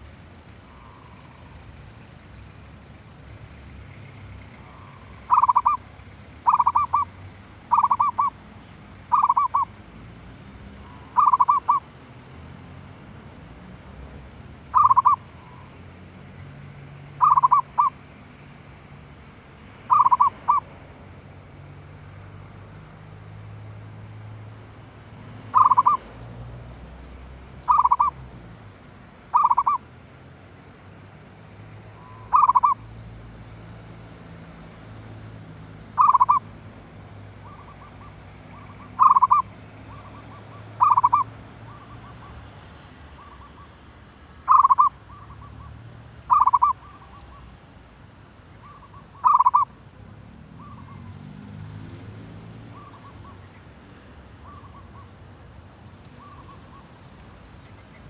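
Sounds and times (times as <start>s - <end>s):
doves cooing: 4.6s - 5.8s, 6.4s - 8.4s, 9.1s - 9.7s, 10.9s - 11.9s, 14.7s - 15.2s, 17.2s - 18.0s, 19.9s - 20.7s, 25.5s - 26.1s, 27.6s - 28.2s, 29.3s - 29.8s, 32.0s - 32.8s, 36.0s - 36.5s, 37.4s - 42.4s, 44.5s - 45.5s, 46.3s - 47.1s, 48.6s - 49.7s.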